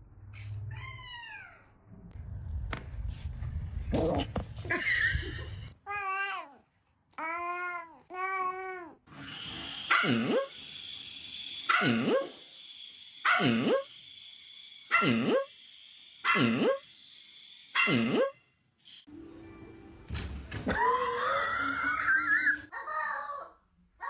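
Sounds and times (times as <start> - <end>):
dog barking: 17.8 - 18.3.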